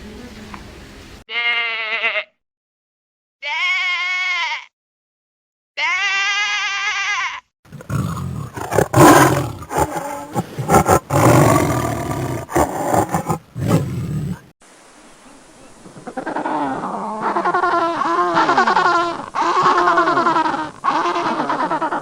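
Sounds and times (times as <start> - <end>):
animal bleating: 1.3 - 2.4, 3.4 - 4.7, 5.8 - 14.4, 17.2 - 22.0
large animal roaring: 7.7 - 14.5.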